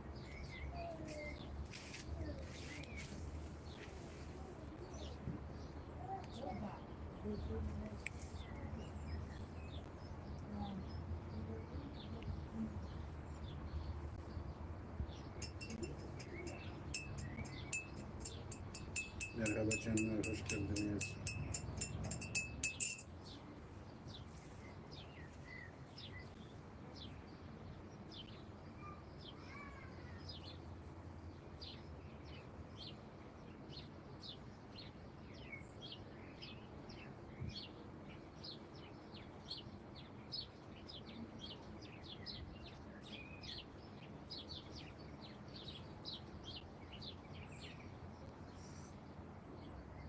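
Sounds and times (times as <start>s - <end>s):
songbirds chirping: 0.0s - 50.0s
low background hum: 2.2s - 23.8s.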